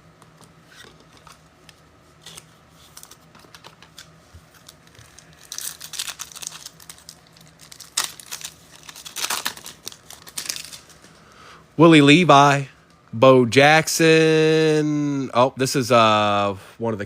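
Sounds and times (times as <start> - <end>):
foil wrapper crinkling: 2.2 - 11.2.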